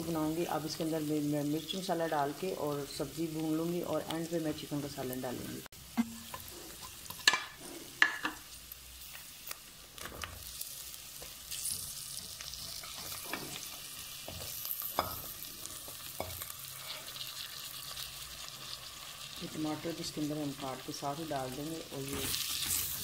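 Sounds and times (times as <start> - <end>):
oil sizzling: 0.0 - 23.0.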